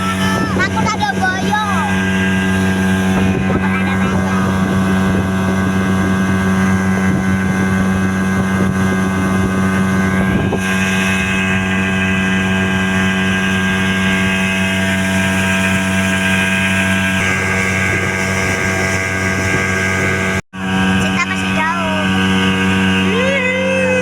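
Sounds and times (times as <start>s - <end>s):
speedboat engine running: 0.0s - 24.0s
water noise: 0.0s - 24.0s
wind: 0.0s - 24.0s.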